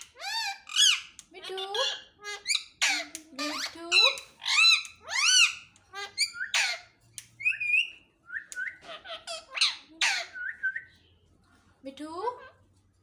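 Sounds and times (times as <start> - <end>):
parrot squawking: 0.0 - 8.0, 8.7 - 10.6.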